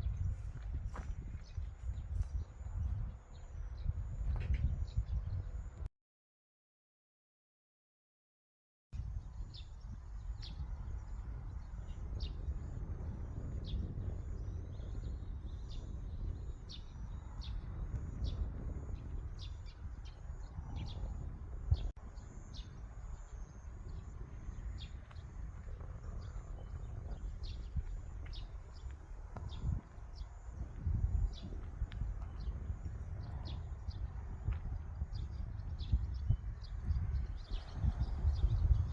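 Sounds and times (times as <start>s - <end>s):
low wind rumble: 0.0s - 5.9s, 9.0s - 38.9s
small birds chirping: 9.2s - 38.9s.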